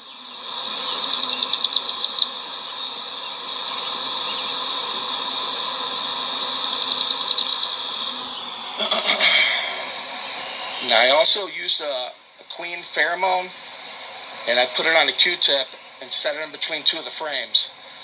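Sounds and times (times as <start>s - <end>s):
bee swarm buzzing: 0.0s - 17.1s
high insect drone: 0.0s - 18.0s
high rapid trill: 6.3s - 16.5s.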